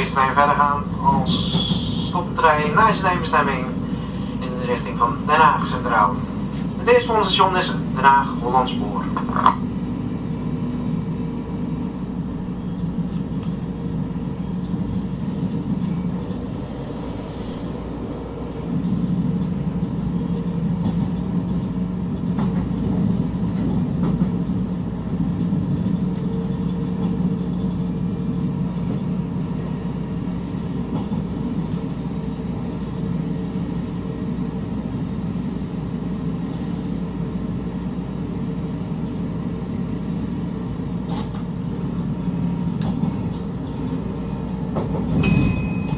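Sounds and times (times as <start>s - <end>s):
train rumbling along track: 0.0s - 45.9s
faint clicks from rails: 25.4s - 28.0s, 41.0s - 42.1s, 42.7s - 43.9s.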